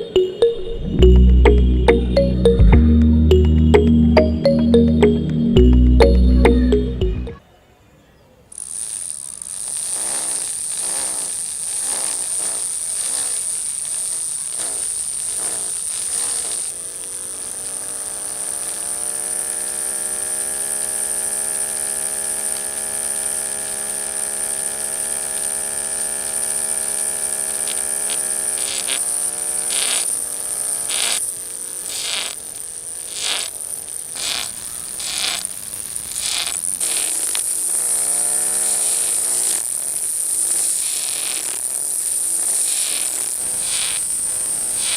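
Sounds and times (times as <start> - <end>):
electric sander motor whining: 36.4 - 44.9.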